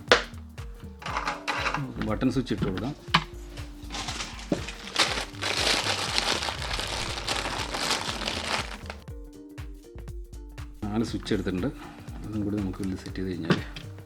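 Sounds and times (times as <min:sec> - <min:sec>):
rustling handling noise: 0:00.8 - 0:09.1.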